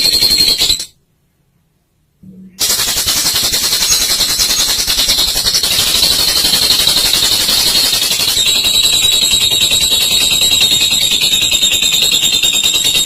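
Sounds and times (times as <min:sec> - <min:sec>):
lovebird rattling trill: 0:02.6 - 0:13.0.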